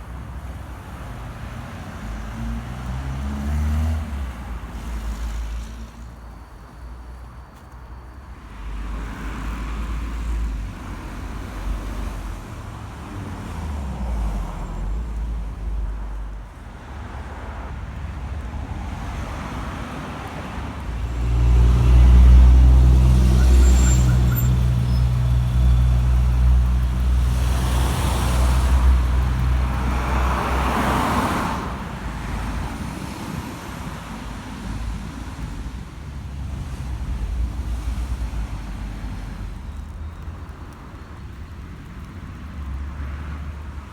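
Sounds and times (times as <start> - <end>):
road traffic noise: 0.0 - 43.9.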